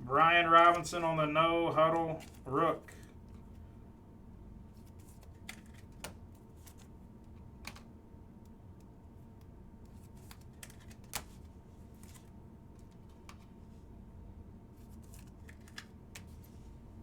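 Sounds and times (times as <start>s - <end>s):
faint steady hum: 0.0s - 17.0s
trading cards clicking and snapping: 4.9s - 7.9s, 9.9s - 13.5s, 15.0s - 16.4s.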